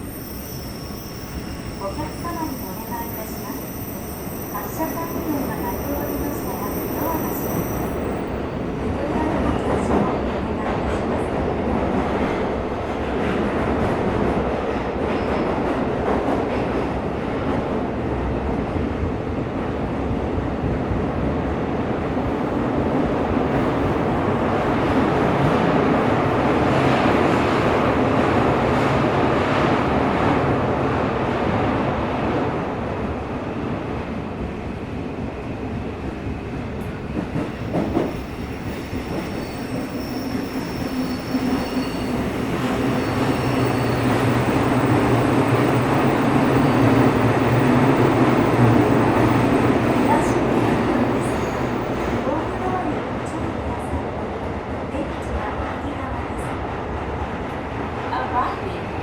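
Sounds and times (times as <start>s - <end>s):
wheels rumbling on rail: 35.6s - 54.1s.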